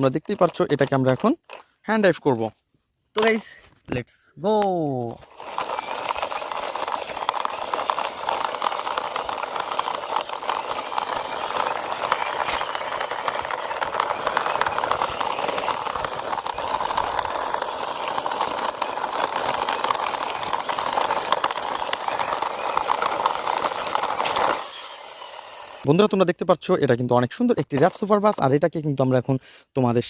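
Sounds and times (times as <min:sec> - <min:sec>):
toy bus wheels rolling and rattling: 0:00.0 - 0:01.8, 0:05.1 - 0:25.9.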